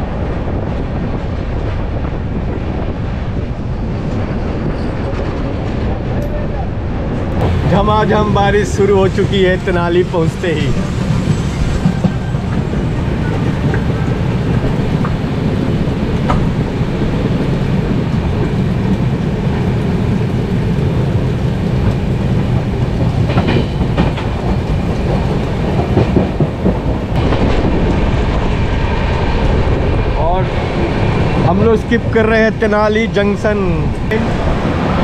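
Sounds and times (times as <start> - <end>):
wind rush: 0.0 - 35.0
heavy rain: 5.9 - 35.0
train wheels clattering on rails: 7.2 - 32.5.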